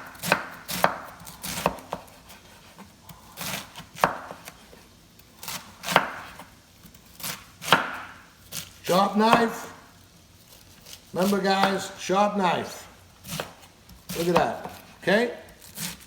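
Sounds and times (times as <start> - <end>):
knife chopping on cutting board: 0.0 - 4.7, 5.4 - 6.5, 7.2 - 9.7, 10.8 - 12.0, 13.2 - 16.0.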